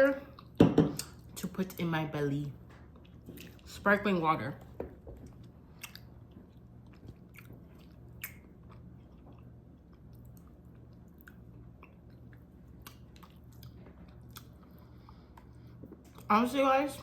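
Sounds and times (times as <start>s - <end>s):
person chewing chocolate: 2.9s - 3.7s, 5.2s - 16.3s.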